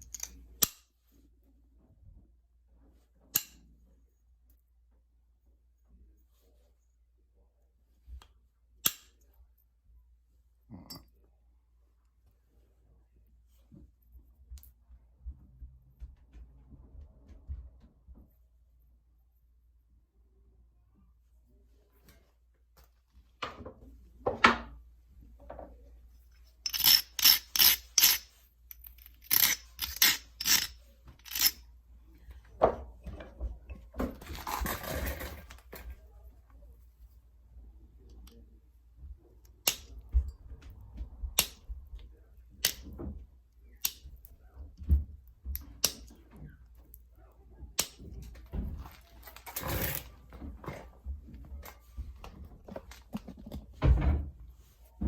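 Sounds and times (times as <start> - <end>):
stone scraping: 26.6 - 31.6.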